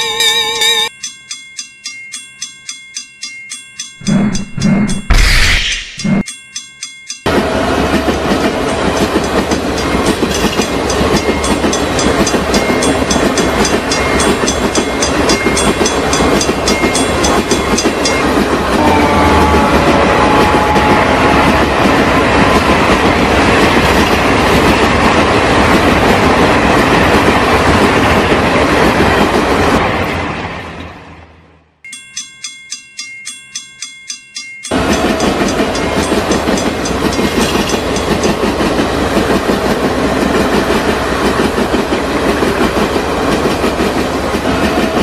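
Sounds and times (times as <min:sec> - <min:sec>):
crossing bell ringing: 0:00.0 - 0:05.2, 0:05.9 - 0:23.1, 0:31.8 - 0:38.7
train wheels clattering on rails: 0:07.2 - 0:30.9, 0:34.7 - 0:45.0.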